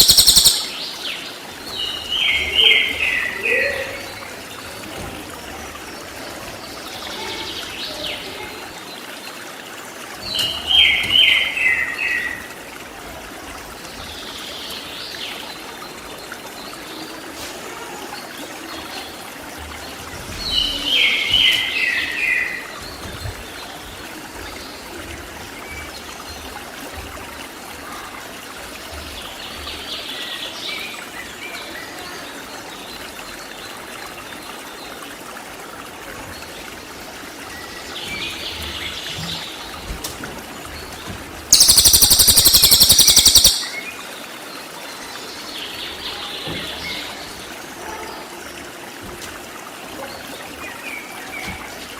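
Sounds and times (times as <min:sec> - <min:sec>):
birdsong: 0:00.0 - 0:04.3, 0:41.5 - 0:44.1
stream running: 0:00.0 - 0:51.9.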